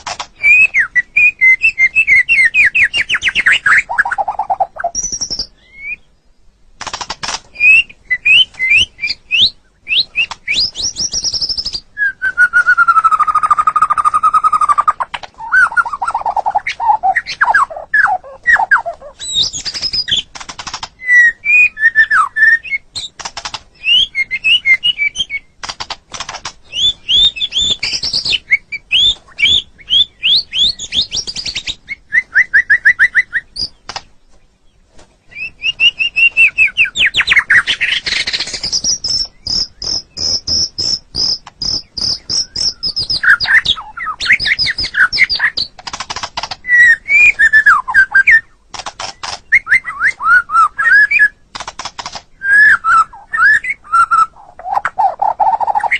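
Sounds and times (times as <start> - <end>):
bird clicking chatter: 0.0 - 0.8, 6.8 - 7.6, 18.8 - 21.0, 23.0 - 23.7, 25.6 - 28.5, 33.6 - 34.1, 37.4 - 47.4, 48.7 - 49.7, 51.5 - 52.4
bird singing whistled notes: 0.4 - 6.4, 7.5 - 20.3, 21.0 - 23.2, 23.8 - 25.6, 26.7 - 33.9, 35.3 - 45.7, 46.6 - 51.4, 52.4 - 55.9.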